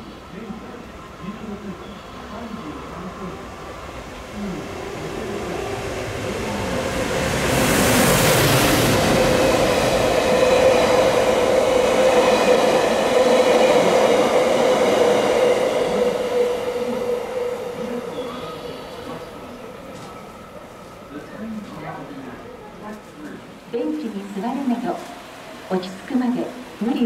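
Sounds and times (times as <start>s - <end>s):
train wheels rumbling on rails: 4.0s - 22.0s.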